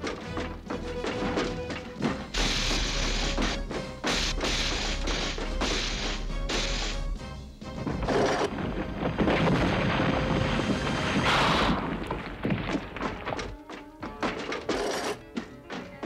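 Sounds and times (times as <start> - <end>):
sharp knocks and thuds: 0.0 - 7.0, 7.7 - 16.0
crashing clatter: 7.8 - 15.2.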